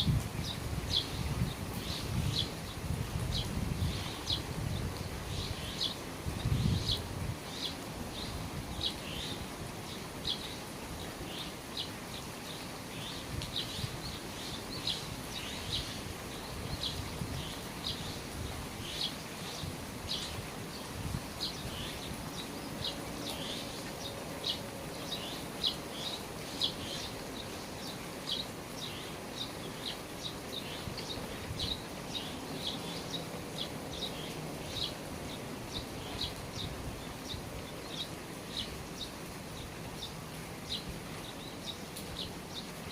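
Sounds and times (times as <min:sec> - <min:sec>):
rain falling at eaves: 0:00.0 - 0:42.9.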